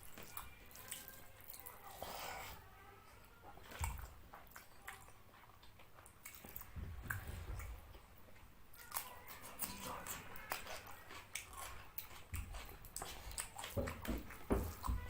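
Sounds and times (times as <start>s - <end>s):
person chewing food: 3.4s - 15.0s.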